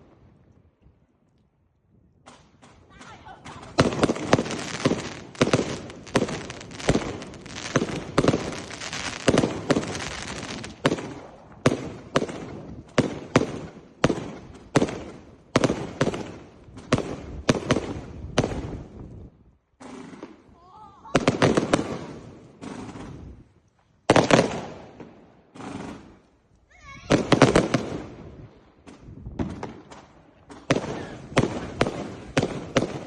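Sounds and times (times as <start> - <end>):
firework bangs: 2.3 - 20.5, 21.1 - 26.3, 27.0 - 33.0
firework crackle: 3.5 - 19.2, 25.5 - 33.0.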